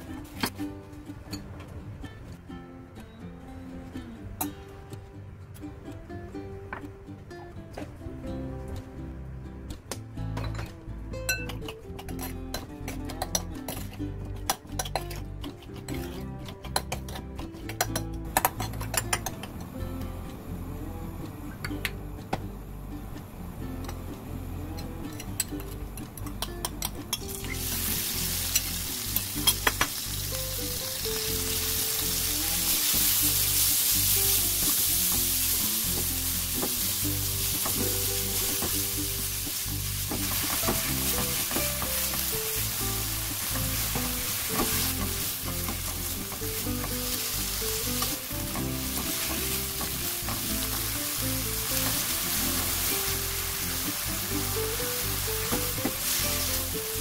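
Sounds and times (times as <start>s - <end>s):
soft background music: 0.0s - 57.0s
meat sizzling in hot oil: 27.4s - 57.0s.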